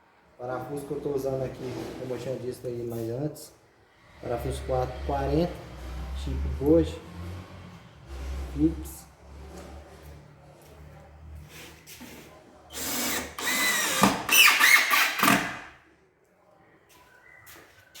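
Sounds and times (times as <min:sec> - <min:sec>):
power drill driving screws: 0:12.7 - 0:15.6.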